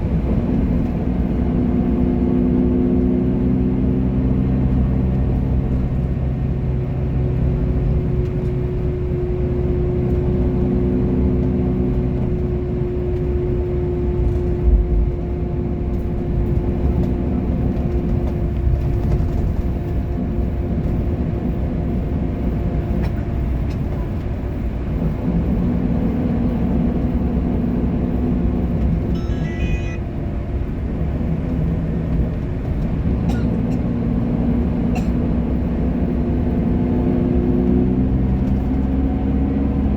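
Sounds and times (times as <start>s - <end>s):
bus engine running: 0.0s - 39.9s
road noise rumble: 0.0s - 39.9s.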